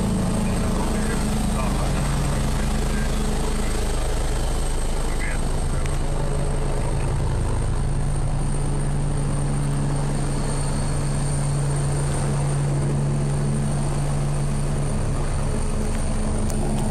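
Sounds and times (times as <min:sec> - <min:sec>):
helicopter rotor beat: 0:00.0 - 0:16.9
turbine whine: 0:00.0 - 0:16.9.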